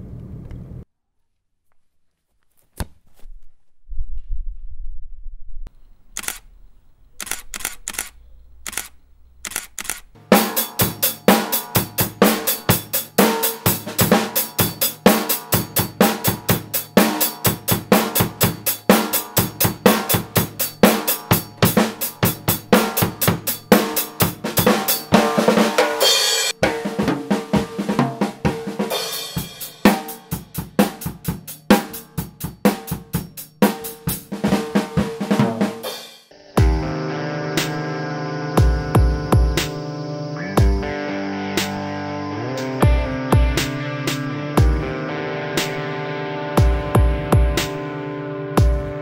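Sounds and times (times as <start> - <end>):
drum kit playing fast rhythm: 10.2 - 36.9, 38.6 - 39.8, 40.6 - 40.9, 42.6 - 44.9, 46.6 - 47.9, 48.6 - 49.0.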